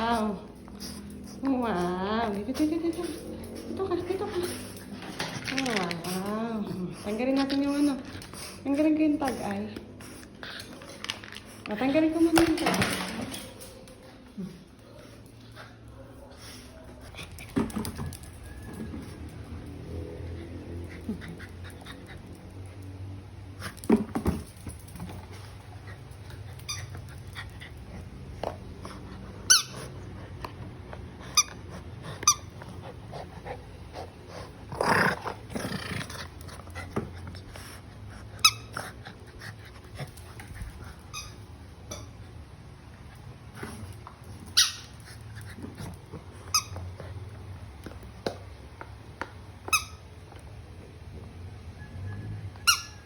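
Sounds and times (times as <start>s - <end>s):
squeaky chew toy squeaking: 26.7s - 27.1s, 29.5s - 29.8s, 41.1s - 42.1s, 49.7s - 50.0s, 52.6s - 53.0s.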